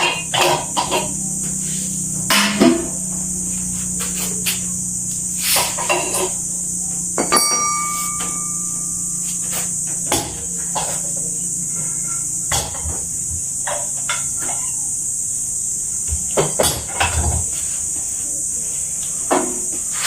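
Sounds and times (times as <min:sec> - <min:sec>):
low hum: 0:00.0 - 0:16.1
high hiss: 0:00.0 - 0:20.0
metallic ping: 0:02.3 - 0:03.0, 0:07.2 - 0:10.2.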